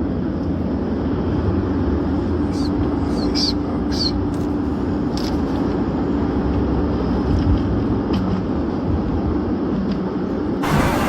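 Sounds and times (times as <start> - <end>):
vehicle driving rumble: 10.6 - 11.0.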